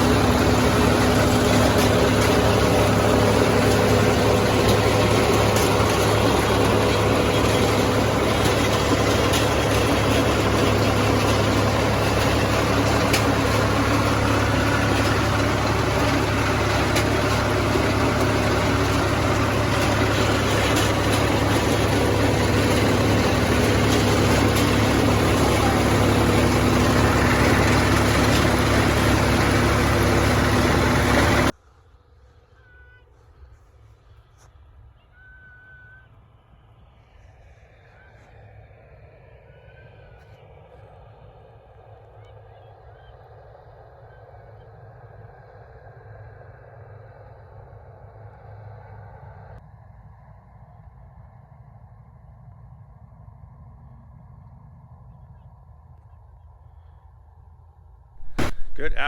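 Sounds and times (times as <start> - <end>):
heavy farm machine engine: 0.0 - 31.6, 58.2 - 59.0.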